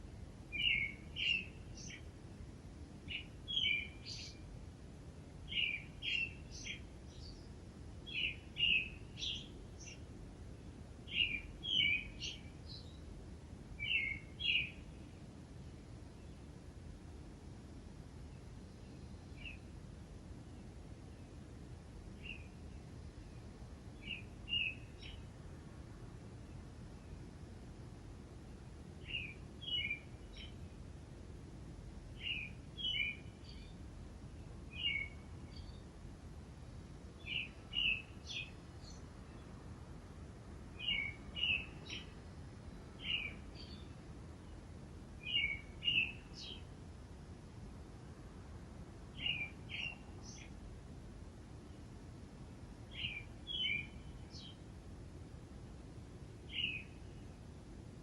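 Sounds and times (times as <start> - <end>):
steady low background noise: 0.0 - 58.0
bird chirping: 0.5 - 2.1, 3.1 - 4.5, 5.5 - 7.5, 8.1 - 10.0, 11.1 - 13.1, 13.8 - 15.1, 18.7 - 19.7, 22.2 - 25.3, 29.0 - 30.7, 32.2 - 33.8, 34.7 - 35.9, 37.2 - 39.5, 40.8 - 44.0, 45.2 - 46.7, 49.1 - 50.6, 52.9 - 54.6, 56.5 - 57.2.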